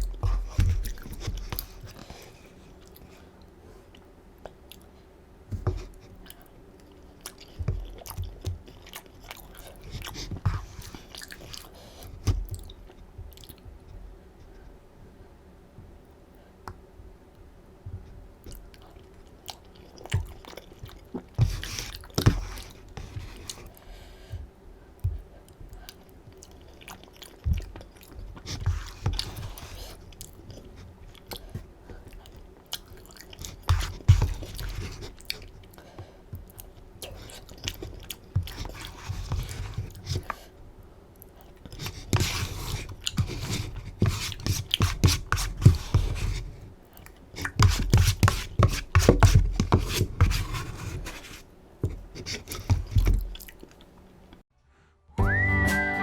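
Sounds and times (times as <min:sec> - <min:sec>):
chewing noodles: 0:06.1 - 0:13.7, 0:18.4 - 0:23.8, 0:25.7 - 0:40.5.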